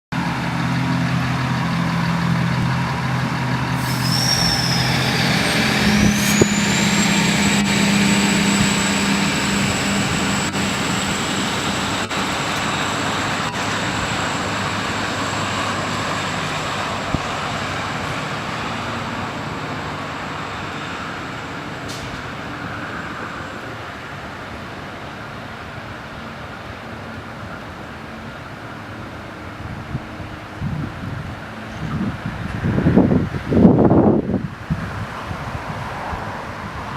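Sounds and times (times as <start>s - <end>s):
diesel train engine running hard: 0.1s - 36.9s
high-pitched whine: 0.2s - 21.8s.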